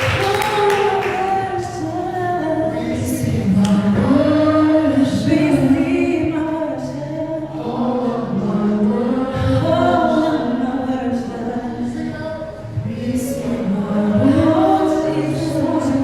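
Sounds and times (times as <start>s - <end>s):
group of voices singing: 0.0s - 16.0s.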